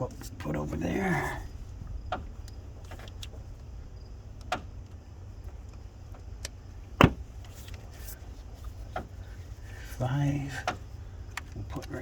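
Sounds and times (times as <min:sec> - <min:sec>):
low steady rumble: 0:00.0 - 0:12.0
sharp knock: 0:07.0 - 0:07.2.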